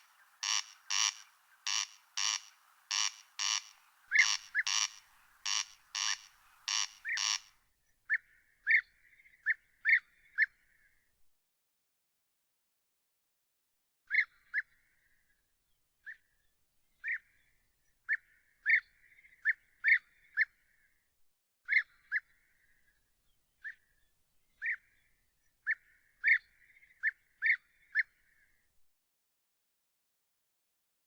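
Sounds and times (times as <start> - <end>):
bird calling with sharp notes: 0.0 - 7.5.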